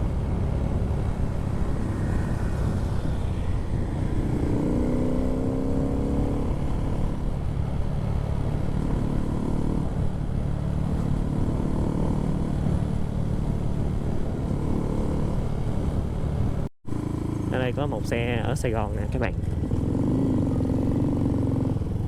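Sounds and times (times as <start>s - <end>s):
wind rumble on microphone: 0.0s - 16.7s
motorcycle engine revving: 0.6s - 7.4s, 8.2s - 22.0s.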